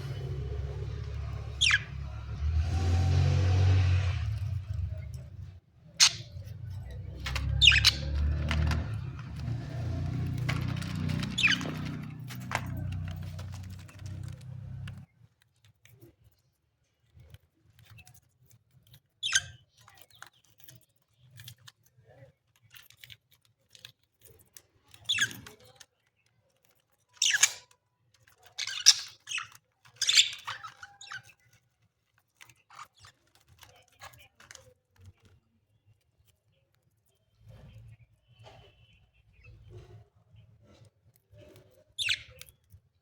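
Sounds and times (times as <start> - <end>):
budgerigars chirping and squawking: 0.0 - 2.7, 6.0 - 14.4, 28.6 - 31.3, 42.0 - 42.5.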